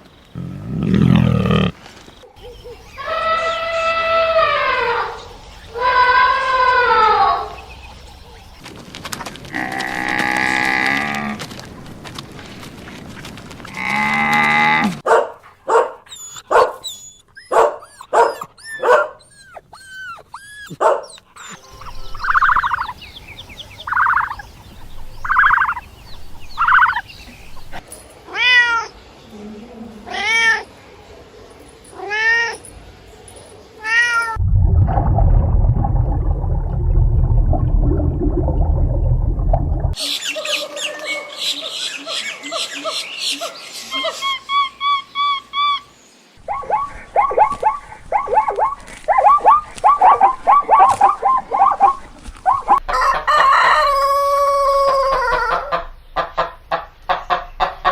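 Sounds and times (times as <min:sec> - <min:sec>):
cats meowing: 0:33.8 - 0:34.4
rough low noise: 0:34.4 - 0:40.0.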